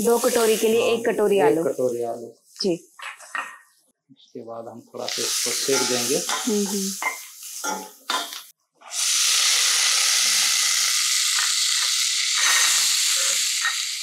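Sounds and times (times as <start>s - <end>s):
potatoes sizzling in hot fat: 0.0s - 2.7s, 5.0s - 14.0s
spatula scraping a pan: 5.4s - 8.4s, 12.4s - 12.9s.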